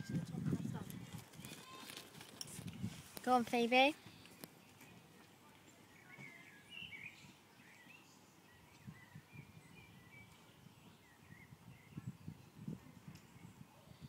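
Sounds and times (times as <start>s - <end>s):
small birds chirping: 3.1s - 14.0s.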